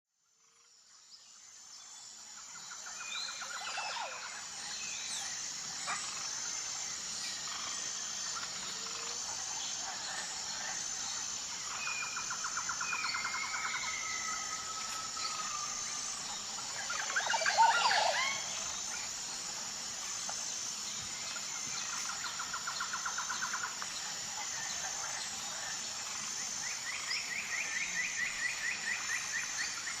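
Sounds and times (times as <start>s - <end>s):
steady high-pitched hum: 0.2s - 30.0s
rapid trilled bird calls: 7.4s - 19.5s.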